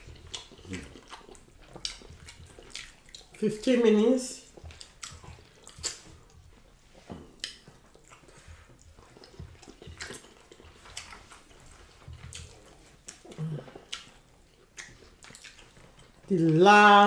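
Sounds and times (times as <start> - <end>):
fingers squelching fish: 0.0 - 15.9
wet chewing and lip smacks: 0.0 - 16.5.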